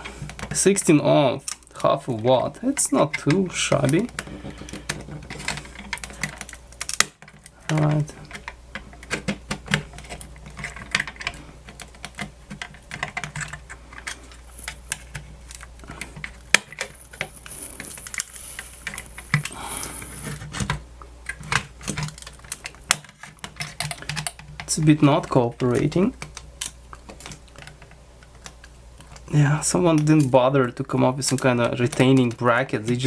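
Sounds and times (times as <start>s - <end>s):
hand tools clicking and scraping: 1.4s - 20.7s.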